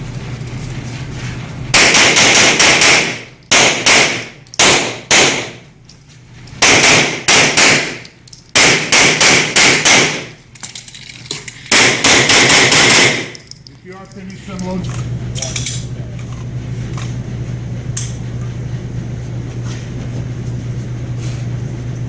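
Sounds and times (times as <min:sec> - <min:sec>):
rapid pistol shots: 0:01.7 - 0:05.6, 0:06.6 - 0:08.0, 0:08.6 - 0:10.4, 0:11.7 - 0:13.4.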